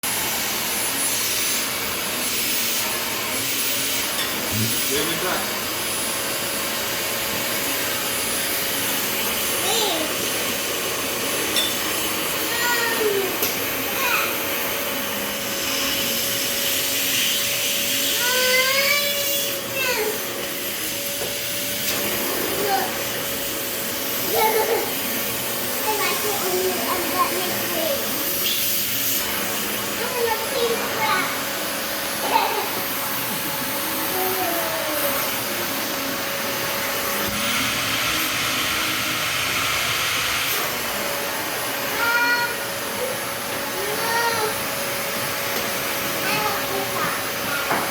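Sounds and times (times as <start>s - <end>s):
vacuum cleaner running: 0.0s - 47.9s
high-pitched voice: 9.6s - 10.3s, 12.4s - 14.4s.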